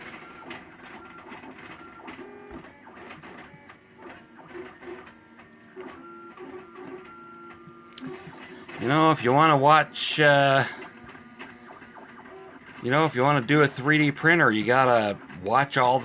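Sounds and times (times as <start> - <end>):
stepper motors whining: 0.0 - 16.0.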